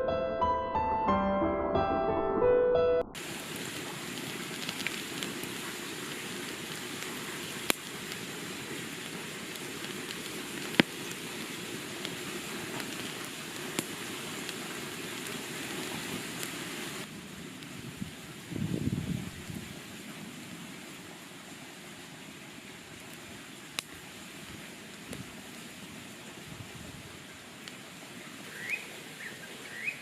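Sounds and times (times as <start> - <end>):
sharp pops of fire: 3.2 - 5.8, 6.6 - 11.3, 12.0 - 15.4
campfire crackling: 3.2 - 30.0.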